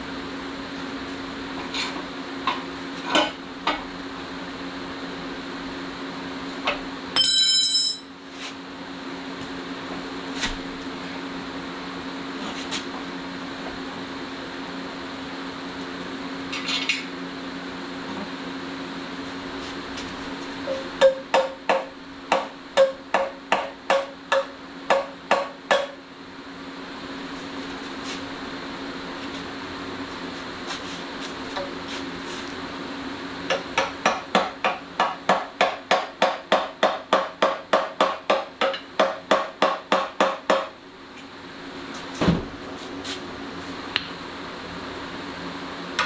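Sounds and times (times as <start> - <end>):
dull thump: 42.2 - 42.6.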